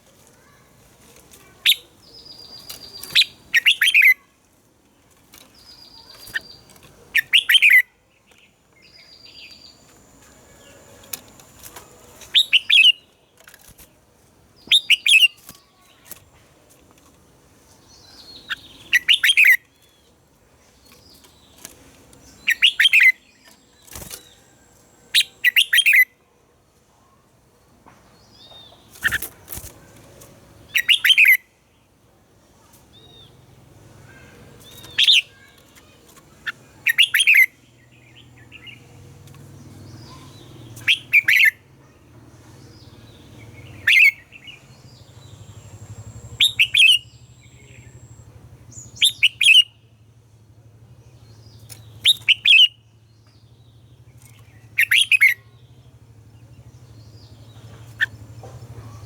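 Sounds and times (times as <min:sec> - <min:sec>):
bird singing double-note phrases: 0:43.5 - 0:49.9.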